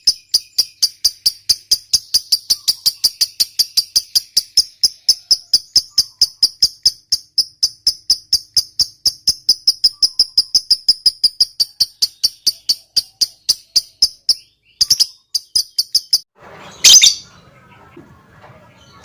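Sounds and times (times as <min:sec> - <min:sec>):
lovebird rapid shrill chirps: 0:00.0 - 0:17.2
harsh bird call: 0:16.4 - 0:19.0.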